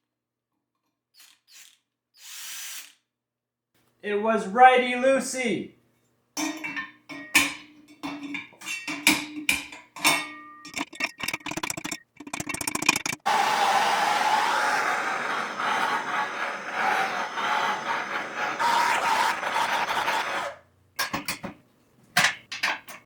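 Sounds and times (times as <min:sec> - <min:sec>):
metal parts knocking and clinking: 0:06.4 - 0:13.2, 0:22.2 - 0:23.0.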